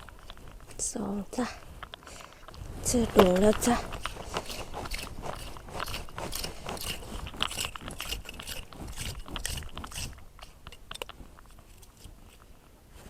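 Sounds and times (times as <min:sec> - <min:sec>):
rake scraping through sand and shells: 0:00.0 - 0:13.0.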